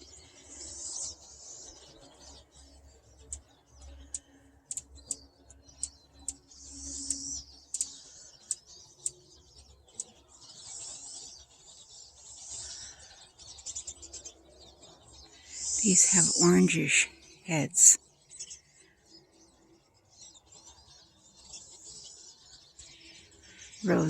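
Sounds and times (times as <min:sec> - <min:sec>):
birds chirping and twittering: 0:00.0 - 0:24.0
buzzy wheezy bird calls: 0:15.4 - 0:18.0.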